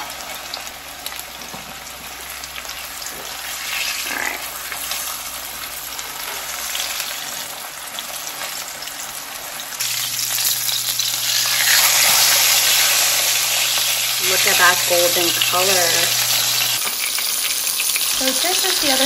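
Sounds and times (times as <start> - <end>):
meat frying in hot oil: 0.0 - 19.0.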